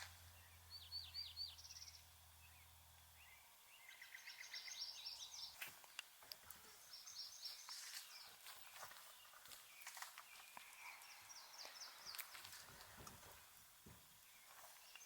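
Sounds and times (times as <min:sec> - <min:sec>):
low steady hum: 0:00.0 - 0:15.0
small birds chirping: 0:00.0 - 0:15.0.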